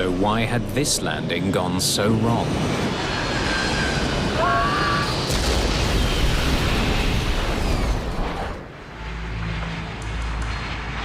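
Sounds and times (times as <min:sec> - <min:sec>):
low hum: 0:00.0 - 0:11.0
explosion blast: 0:04.3 - 0:08.6.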